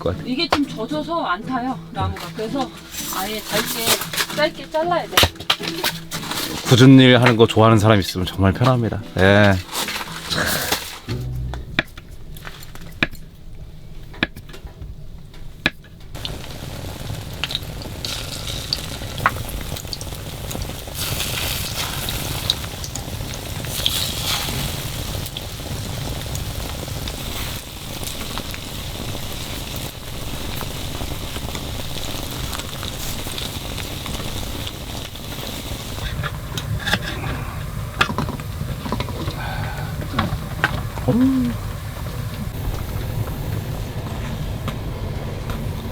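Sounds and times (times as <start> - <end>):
food sizzling in a pan: 0.3 - 7.1, 16.2 - 45.9.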